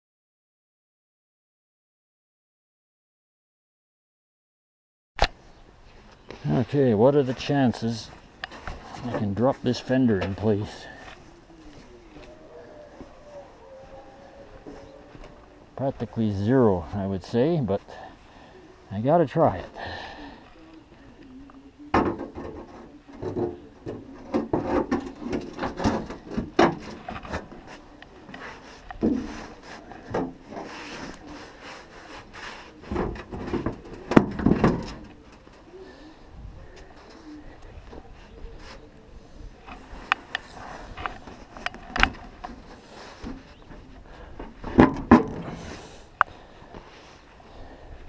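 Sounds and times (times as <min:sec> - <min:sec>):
sheet metal clunks and knocks: 0:44.6 - 0:45.5.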